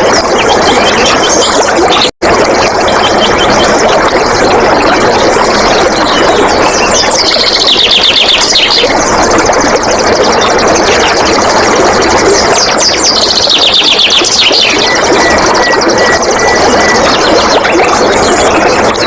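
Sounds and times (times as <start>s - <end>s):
flowing water: 0.0s - 19.0s
birds singing: 5.9s - 8.9s, 12.4s - 19.0s.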